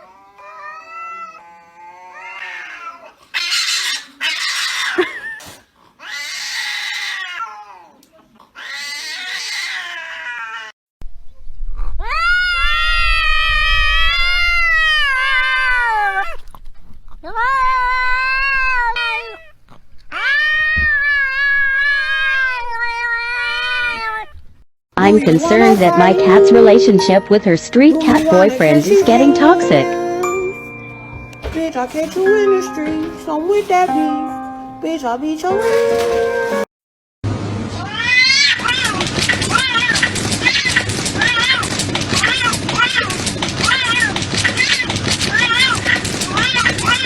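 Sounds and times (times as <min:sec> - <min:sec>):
cat yowling: 0:00.0 - 0:08.0, 0:08.6 - 0:10.7, 0:37.8 - 0:47.0
cats hissing screams: 0:02.0 - 0:07.9, 0:08.6 - 0:10.7, 0:37.7 - 0:47.0.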